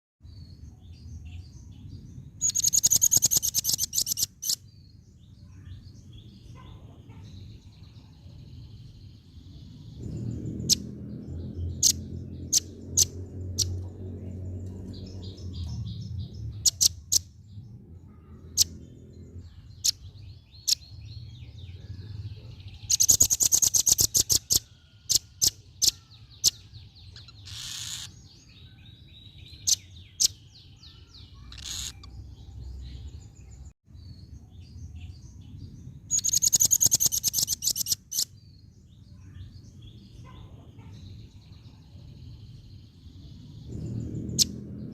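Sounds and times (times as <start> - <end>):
bird rattling trills: 2.4 - 4.6.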